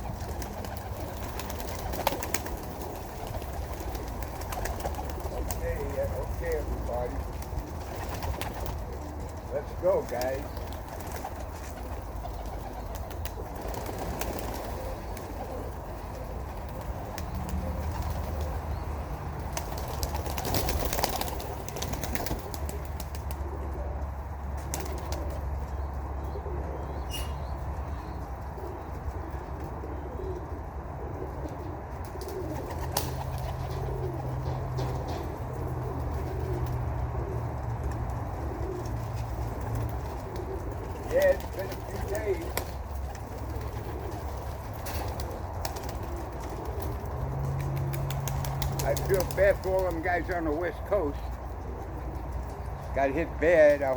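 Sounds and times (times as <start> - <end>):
wings flapping: 0.0 - 23.6, 24.6 - 25.4, 32.0 - 50.5
pigeons cooing: 0.0 - 53.9.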